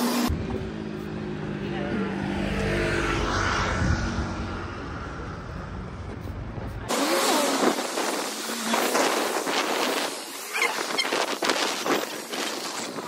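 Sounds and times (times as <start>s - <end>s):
low vehicle rumble: 0.3s - 7.0s
hissy noise: 6.2s - 13.0s.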